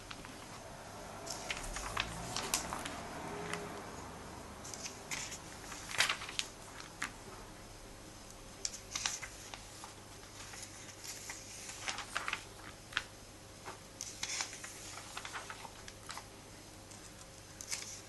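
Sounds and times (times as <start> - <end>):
comic book rustling and clicking: 1.3 - 3.7, 4.7 - 7.2, 8.7 - 16.3, 16.9 - 18.0.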